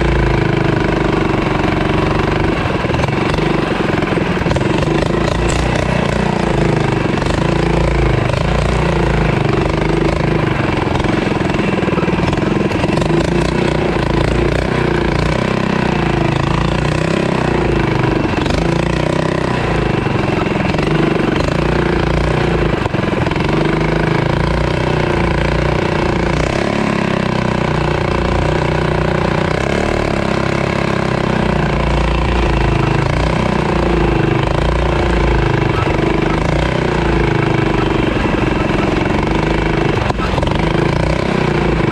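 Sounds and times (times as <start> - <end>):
small motorbike engine revving: 0.0 - 41.9.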